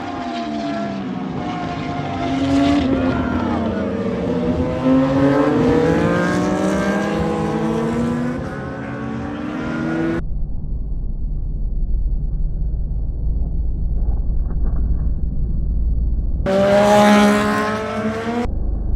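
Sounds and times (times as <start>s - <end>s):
racing motorcycle engines revving: 0.0s - 10.2s, 16.4s - 18.5s.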